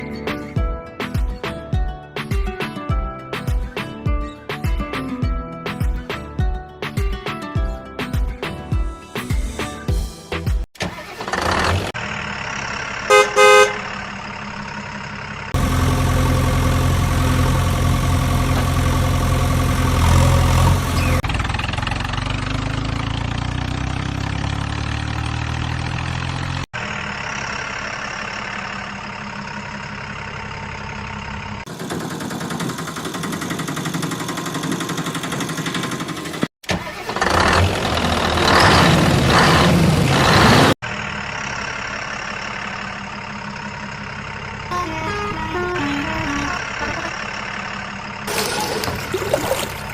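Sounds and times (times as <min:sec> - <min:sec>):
heavy engine running: 0:10.9 - 0:49.9
vehicle horn honk: 0:13.1 - 0:13.9, 0:44.6 - 0:47.3.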